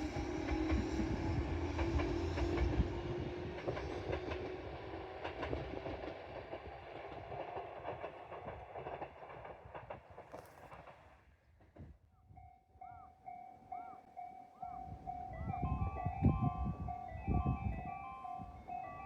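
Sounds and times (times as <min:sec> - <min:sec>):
electric train running: 0:00.0 - 0:09.3
wheels clacking over rail joints: 0:03.5 - 0:11.3.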